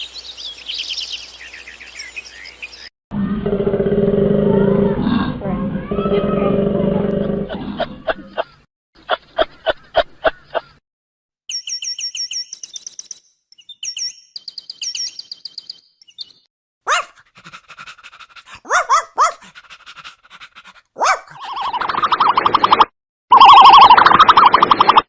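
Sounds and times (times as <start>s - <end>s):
short yelping barks: 16.8s - 17.2s, 18.6s - 19.5s, 21.0s - 21.5s
rapid pulsing animal call: 16.9s - 22.2s.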